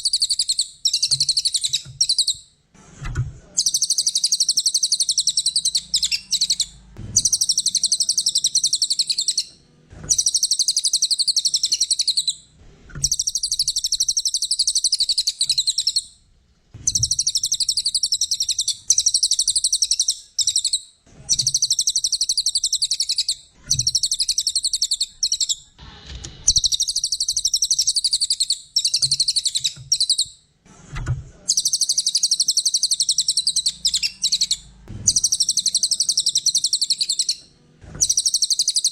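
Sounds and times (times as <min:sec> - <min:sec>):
songbird chattering trills: 0:03.6 - 0:09.5, 0:10.1 - 0:12.4, 0:31.5 - 0:37.4.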